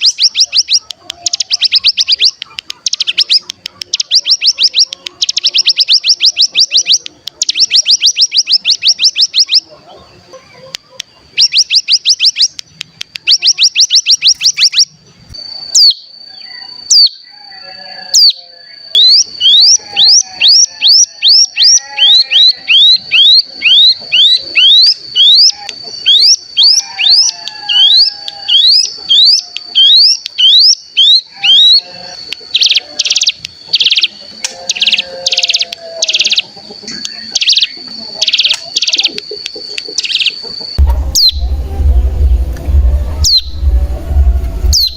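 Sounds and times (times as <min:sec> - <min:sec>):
bird singing trills and whistles: 0:00.0 - 0:09.7, 0:11.2 - 0:41.4
steady high tone: 0:40.4 - 0:44.9.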